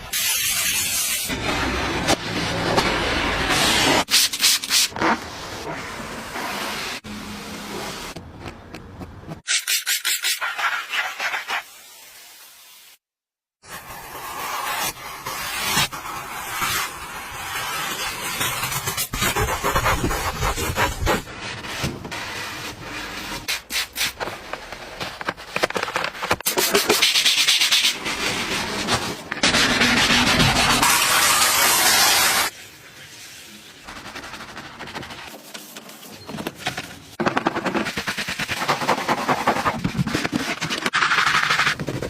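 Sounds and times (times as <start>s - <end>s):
rubbing and scraping: 13.7s - 42.0s.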